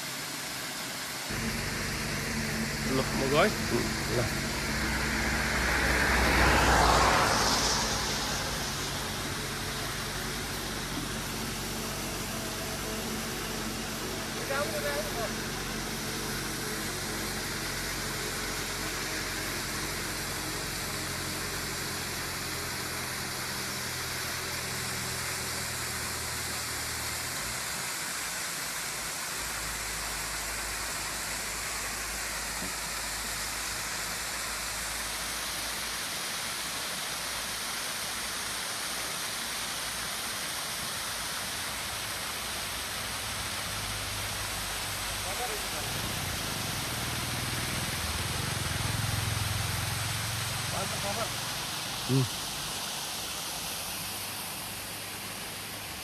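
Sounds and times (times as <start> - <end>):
waterfall rushing: 0.0 - 56.0
low hum: 1.3 - 23.7.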